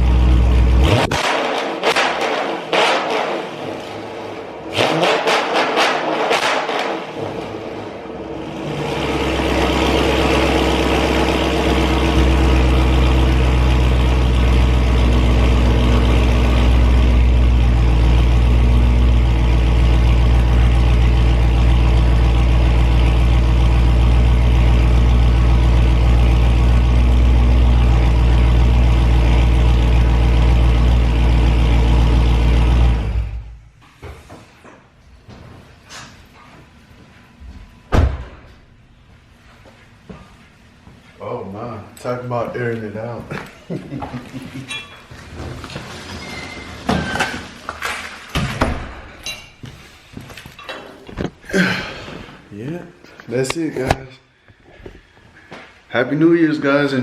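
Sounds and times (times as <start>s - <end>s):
car engine idling: 0.0s - 1.0s, 7.5s - 33.7s.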